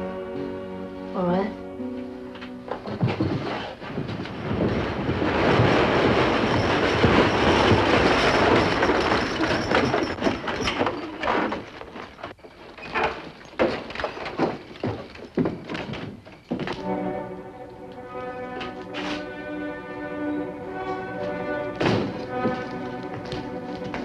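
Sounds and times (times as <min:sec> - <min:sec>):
horse hooves clopping: 0:02.4 - 0:17.1, 0:20.8 - 0:24.0
wagon wheels rattling: 0:02.8 - 0:17.1, 0:20.8 - 0:24.0.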